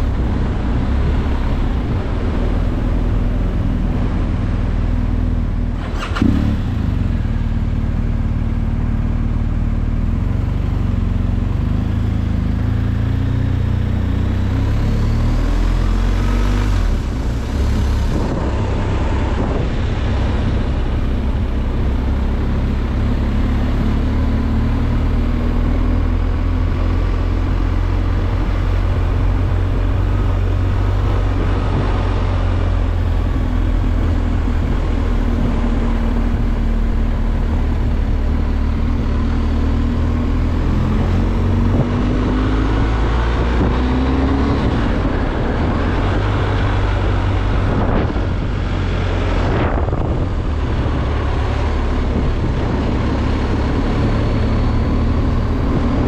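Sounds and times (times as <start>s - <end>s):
motorcycle engine running: 0.0s - 15.8s
wind rushing: 40.4s - 56.0s.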